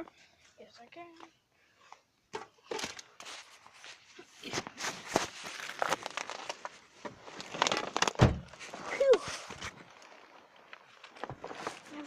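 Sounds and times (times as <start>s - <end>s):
crinkling rustling handling noise: 2.6s - 12.0s.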